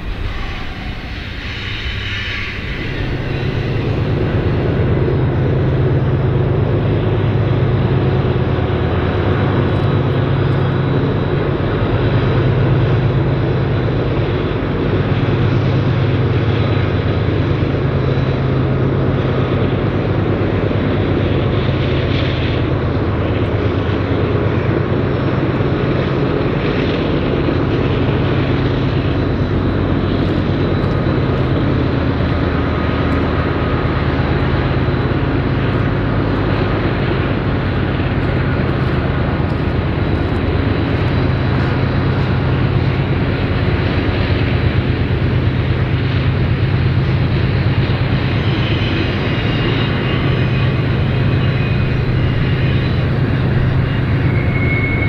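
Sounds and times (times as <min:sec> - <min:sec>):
faint high ringing tone: 0:00.0 - 0:05.0, 0:48.2 - 0:55.0
diesel locomotive engines droning: 0:00.0 - 0:55.0
wheels rumbling on rail: 0:00.0 - 0:55.0.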